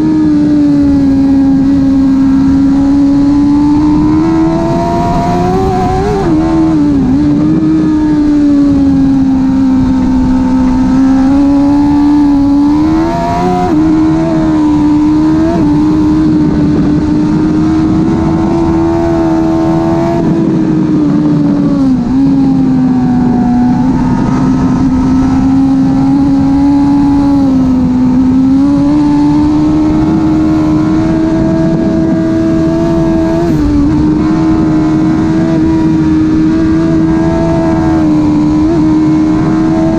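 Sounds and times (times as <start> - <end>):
motorcycle engine at speed: 0.0 - 39.9
wind and road noise: 0.0 - 39.9.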